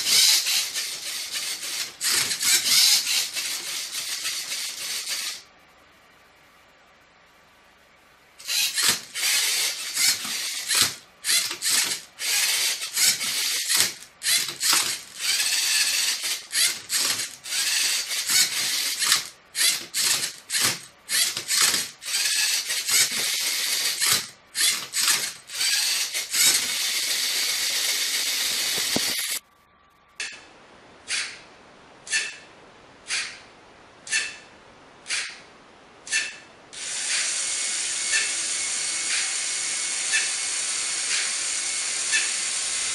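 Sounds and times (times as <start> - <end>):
robot motors whirring: 0.0 - 5.4, 8.4 - 29.4.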